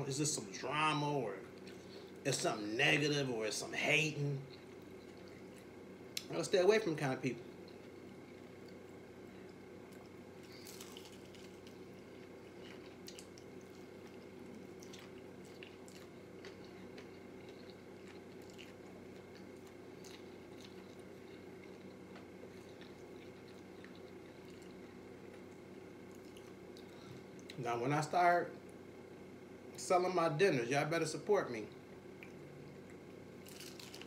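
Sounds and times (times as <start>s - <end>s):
steady low hum: 0.0s - 34.0s
chewing crispy chicken skin: 4.5s - 6.4s, 7.5s - 27.6s, 32.0s - 34.0s.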